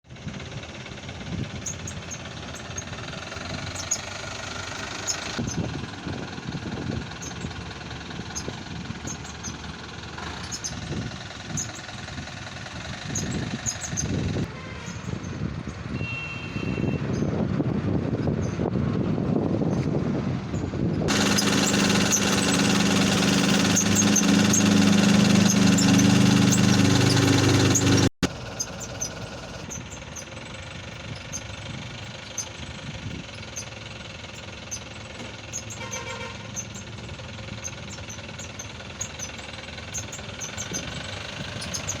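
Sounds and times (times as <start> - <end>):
diesel truck engine running: 20.1 - 42.0
quiet steady running noise: 21.1 - 28.1.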